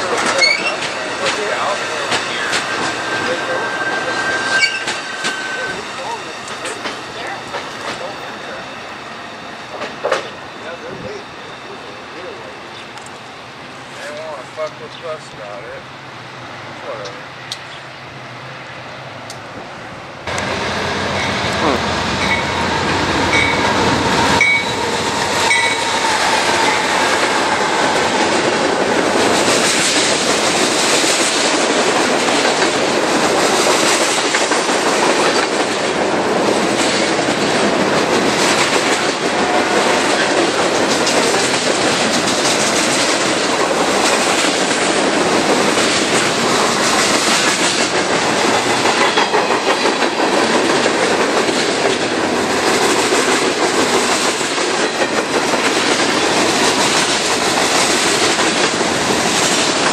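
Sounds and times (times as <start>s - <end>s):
train wheels clattering over rails: 0.0s - 3.8s, 4.4s - 8.7s, 9.7s - 11.1s, 20.3s - 59.9s
high wheel squeals: 0.3s - 1.1s, 1.9s - 12.9s, 21.2s - 28.4s.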